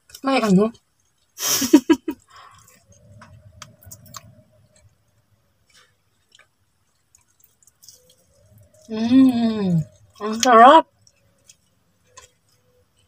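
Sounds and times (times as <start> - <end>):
faint chewing: 0.0 - 13.0
mouth clicks and smacks: 2.0 - 4.4.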